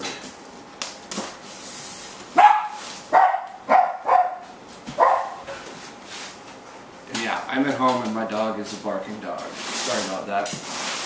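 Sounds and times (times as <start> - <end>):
dog barking: 2.4 - 5.5.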